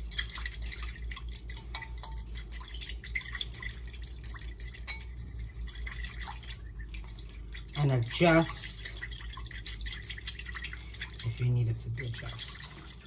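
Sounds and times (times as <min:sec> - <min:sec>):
utensil clicking against a bowl: 0:00.0 - 0:13.0.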